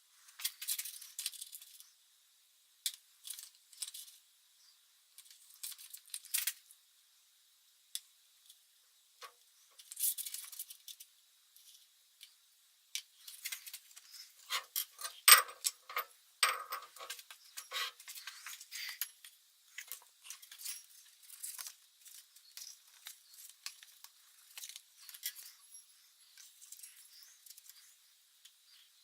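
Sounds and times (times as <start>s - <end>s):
metal parts clinking and scraping: 0.4s - 1.8s, 13.3s - 19.2s, 19.8s - 25.8s, 26.4s - 27.8s.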